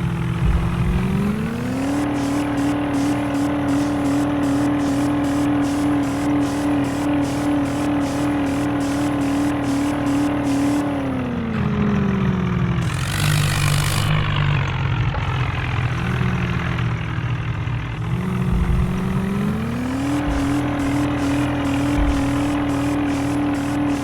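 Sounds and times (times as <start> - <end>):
vehicle engine running hard: 0.0 - 24.0
hissing noise: 0.2 - 11.4, 12.8 - 14.6, 18.0 - 24.0.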